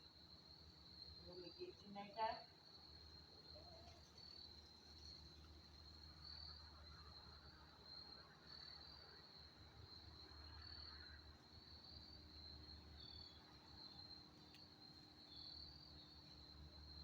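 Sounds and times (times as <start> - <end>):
insects trilling: 0.1 - 17.0.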